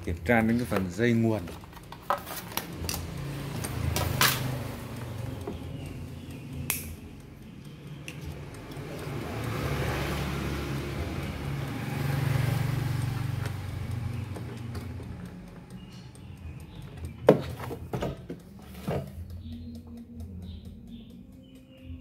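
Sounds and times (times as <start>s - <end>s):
sharp click: 6.6s - 7.1s.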